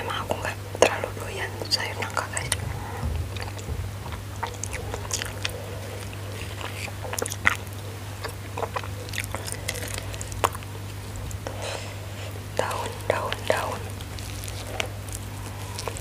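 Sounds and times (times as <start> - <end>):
low hum: 0.0 - 16.0
chewing and wet mouth sounds: 0.1 - 16.0
mouth smacks: 2.0 - 11.6, 12.3 - 16.0.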